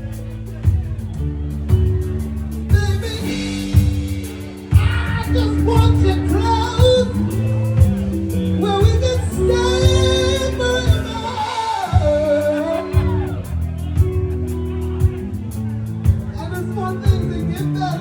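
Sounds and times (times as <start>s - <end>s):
bass: 0.0s - 18.0s
keyboard notes: 0.0s - 18.0s
singer holding wordless notes: 2.5s - 15.0s
drum hits: 2.7s - 6.2s.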